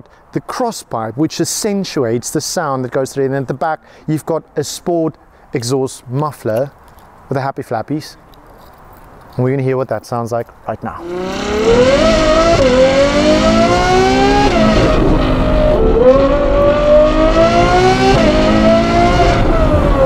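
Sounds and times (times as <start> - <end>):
sports car engine accelerating hard: 11.0 - 20.0.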